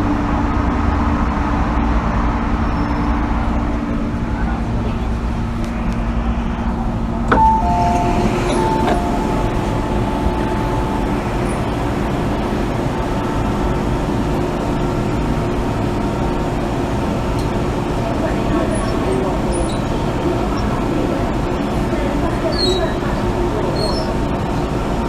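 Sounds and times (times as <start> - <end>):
low motor hum: 3.3 - 21.7
train wheels rumbling: 3.3 - 25.0
two-tone electronic chime: 7.3 - 12.9.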